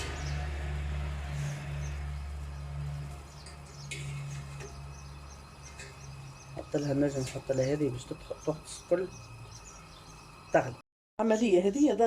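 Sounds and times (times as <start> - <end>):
steady low hum: 0.0 - 10.8
faint high bird chirps: 3.3 - 11.6.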